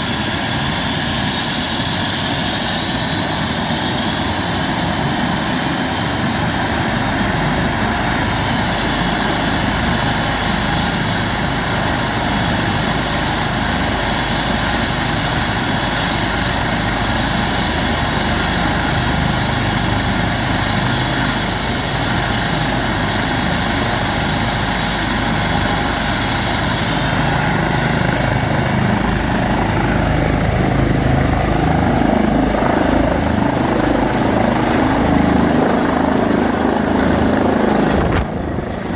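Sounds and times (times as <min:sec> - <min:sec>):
helicopter rotor noise: 0:00.0 - 0:38.9
helicopter turbine whine: 0:00.0 - 0:38.9.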